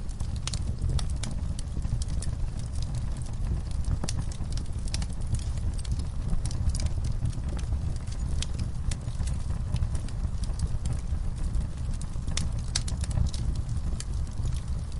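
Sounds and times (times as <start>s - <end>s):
low rumble of flame: 0.0s - 14.9s
wood fire crackling and popping: 0.0s - 14.9s.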